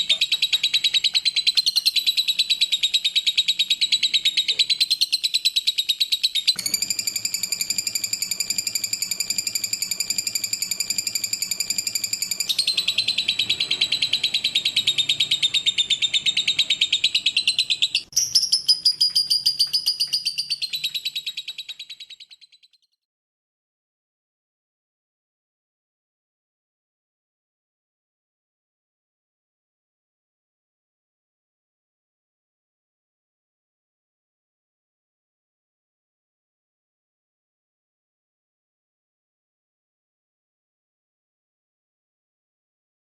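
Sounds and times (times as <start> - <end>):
lovebird chattering trill: 0.0 - 22.7.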